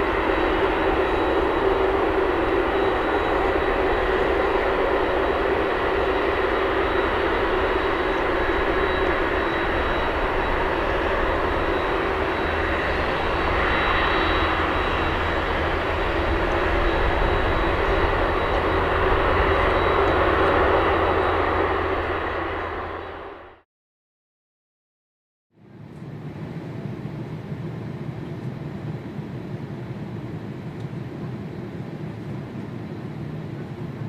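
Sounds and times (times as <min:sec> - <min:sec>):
jet engines running: 0:00.0 - 0:23.6.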